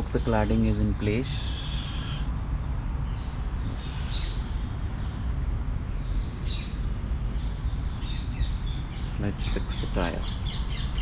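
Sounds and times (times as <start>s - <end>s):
birds calling: 0.0s - 11.0s
low background rumble: 0.0s - 11.0s.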